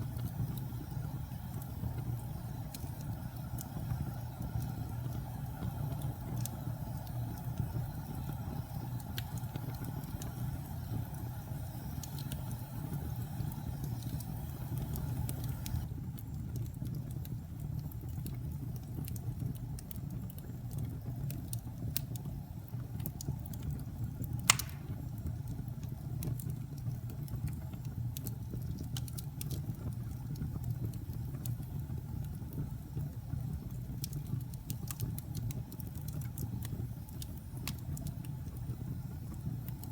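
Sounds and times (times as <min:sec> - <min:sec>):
fire crackles: 0:00.0 - 0:39.9
fire rumbling in fireplace: 0:00.0 - 0:39.9
sharp loud pop: 0:24.5 - 0:25.0.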